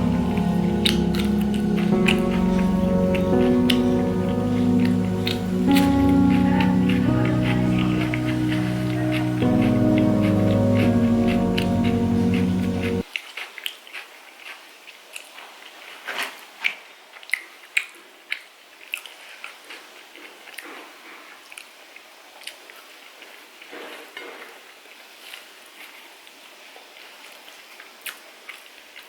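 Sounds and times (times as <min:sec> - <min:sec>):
chewing food: 0:13.1 - 0:15.4.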